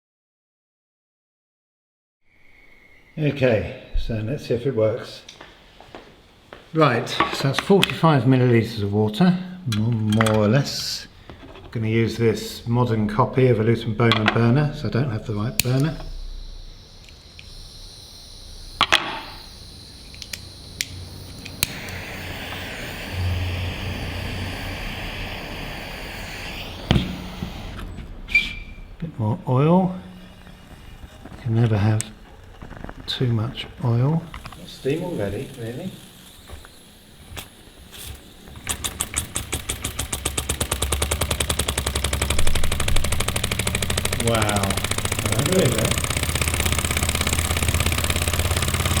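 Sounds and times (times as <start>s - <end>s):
burner hissing: 10.7s - 49.0s
toy steam engine exhaust beats: 12.1s - 49.0s
sharp clicks and knocks: 18.8s - 22.8s, 30.2s - 49.0s.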